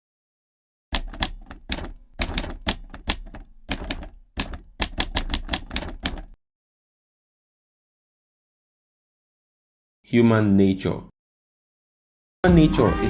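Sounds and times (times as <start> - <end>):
typewriter keys clacking: 0.9 - 6.4.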